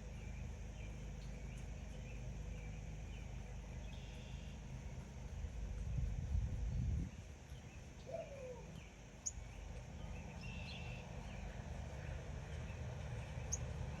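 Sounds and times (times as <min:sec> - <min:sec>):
birds chirping: 0:00.0 - 0:05.2, 0:07.1 - 0:13.8
steady low rumble: 0:00.0 - 0:14.0.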